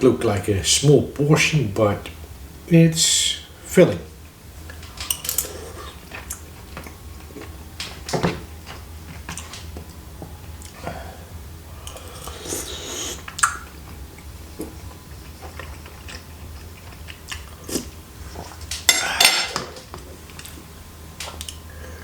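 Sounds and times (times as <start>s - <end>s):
chewing and mouth noises: 11.8s - 18.9s.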